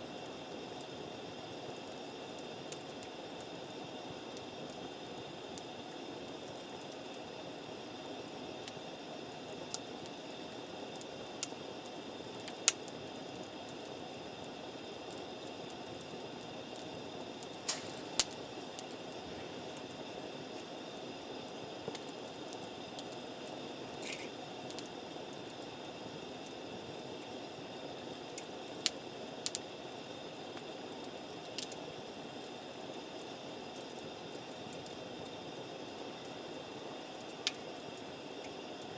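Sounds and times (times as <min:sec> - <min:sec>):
campfire hissing: 0:00.0 - 0:38.9
fire pops and cracks: 0:12.3 - 0:13.0, 0:15.0 - 0:19.9, 0:21.8 - 0:23.2, 0:23.9 - 0:25.6, 0:28.3 - 0:29.7, 0:30.5 - 0:32.5, 0:37.0 - 0:38.6.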